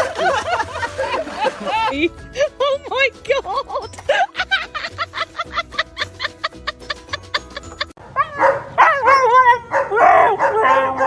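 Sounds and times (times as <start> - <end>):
upbeat background music: 0.0 - 8.0.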